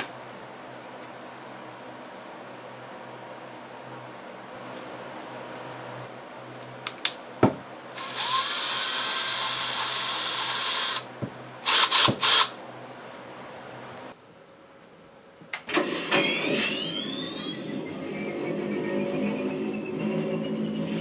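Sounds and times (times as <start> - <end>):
power drill running: 7.9 - 12.6, 15.7 - 21.0.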